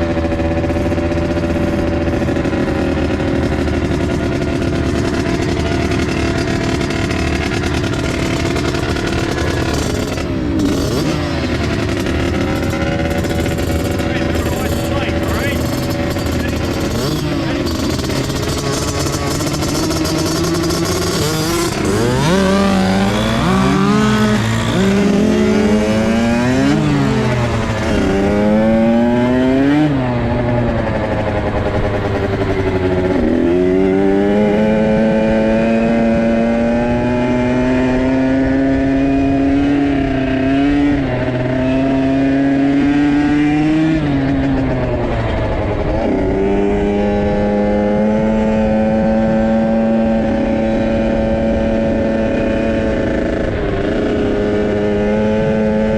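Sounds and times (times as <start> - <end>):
dirt bike engines revving: 0.0 - 55.9.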